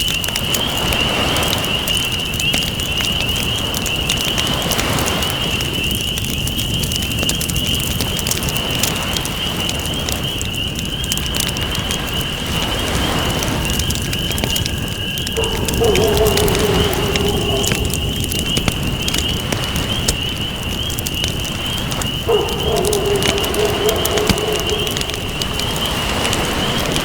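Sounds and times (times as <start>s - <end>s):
campfire crackling: 0.0s - 27.0s
ocean waves: 11.6s - 27.0s
lower wavering call: 15.4s - 19.5s, 22.2s - 26.8s.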